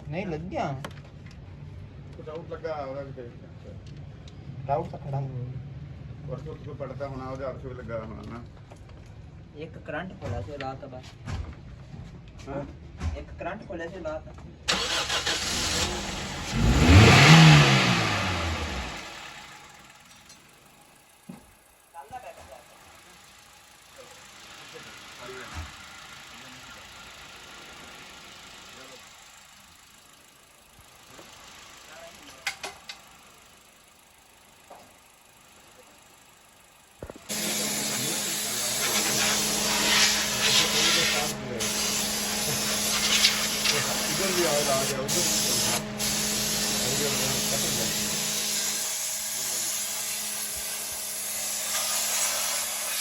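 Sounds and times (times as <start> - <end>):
car engine revving: 14.7 - 20.1, 37.2 - 50.9
compressed air hissing from blow gun: 37.3 - 53.0.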